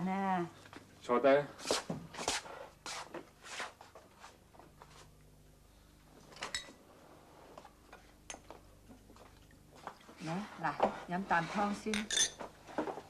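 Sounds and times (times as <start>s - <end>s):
low steady hum: 0.0s - 13.0s
crockery clink: 11.9s - 12.4s
tableware clatter: 11.9s - 12.5s.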